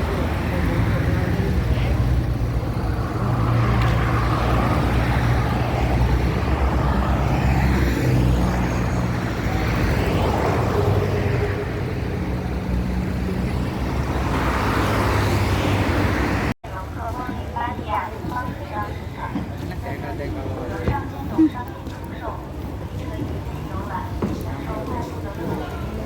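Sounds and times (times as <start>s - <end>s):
engine humming: 0.0s - 16.6s.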